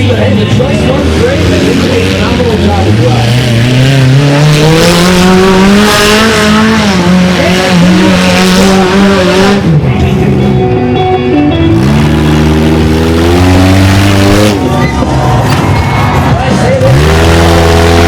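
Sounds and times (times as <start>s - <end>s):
mini monster truck engine revving: 0.8s - 9.6s, 11.7s - 14.8s, 16.8s - 18.0s.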